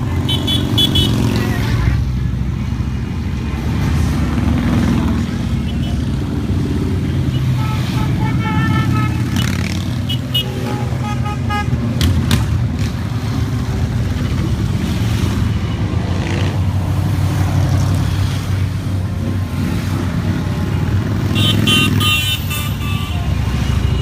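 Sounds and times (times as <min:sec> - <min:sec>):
motorcycles passing: 0:00.0 - 0:24.0
horn toots: 0:07.3 - 0:12.5, 0:21.3 - 0:24.0.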